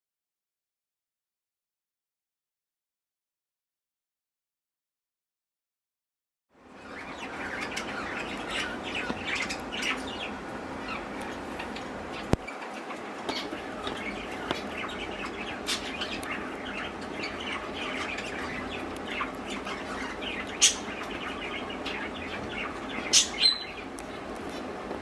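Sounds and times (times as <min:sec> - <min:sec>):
budgies chirping: 0:06.7 - 0:25.0.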